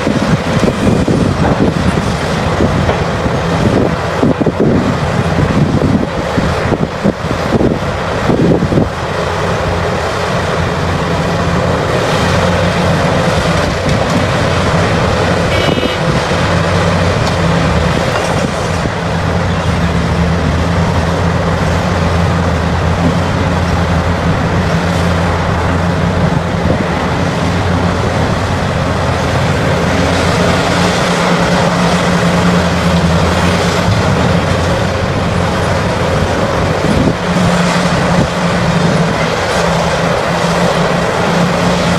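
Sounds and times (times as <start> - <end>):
heavy diesel machinery droning: 0.0 - 41.9
high-pitched squeal: 15.4 - 16.3.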